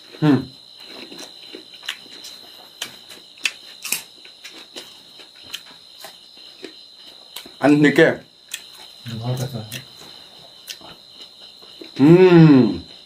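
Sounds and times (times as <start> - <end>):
person chewing with lip smacks: 0.8 - 7.6.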